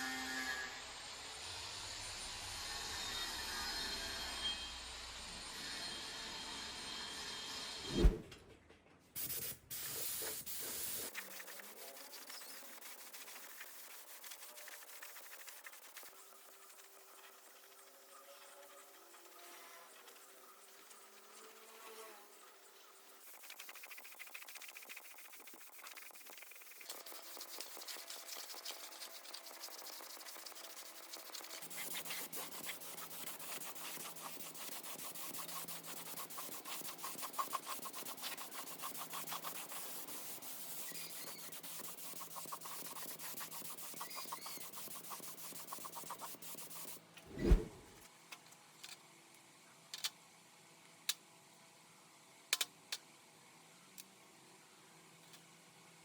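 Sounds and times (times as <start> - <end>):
hand sanding: 10.0 - 17.7, 23.2 - 47.6.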